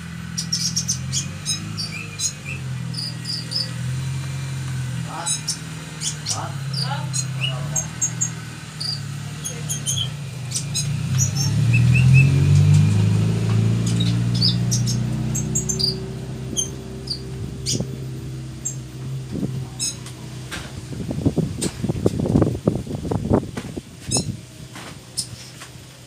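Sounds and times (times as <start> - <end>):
low droning hum: 0.0 - 26.0
bird chirping: 0.1 - 18.9, 19.6 - 20.1, 24.1 - 24.4.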